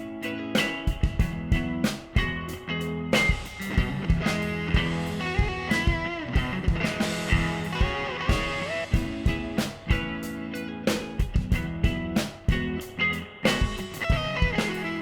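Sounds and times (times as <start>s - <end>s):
electric guitar single-note lines: 0.0s - 15.0s
steady beat of sharp hits: 0.6s - 2.6s, 3.2s - 15.0s.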